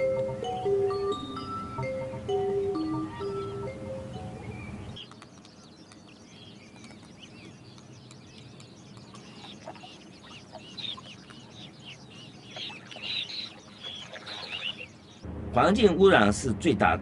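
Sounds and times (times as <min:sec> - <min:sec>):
flock of birds chirping: 0:02.5 - 0:16.0.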